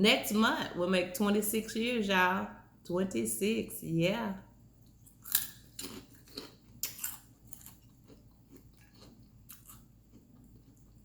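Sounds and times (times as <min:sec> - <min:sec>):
person chewing: 0:04.8 - 0:11.0.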